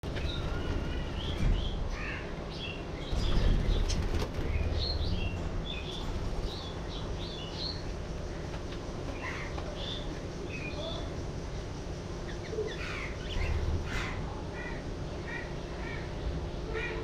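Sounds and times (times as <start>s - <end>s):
wings flapping: 3.2s - 5.2s
budgerigars chirping and warbling: 12.3s - 16.2s.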